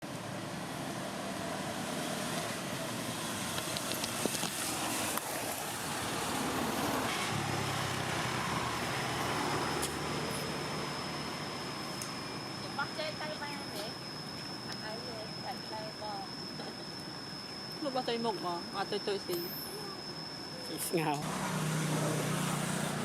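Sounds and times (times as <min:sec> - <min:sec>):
distant road traffic: 0:00.0 - 0:23.0
thin high whine: 0:00.1 - 0:23.0.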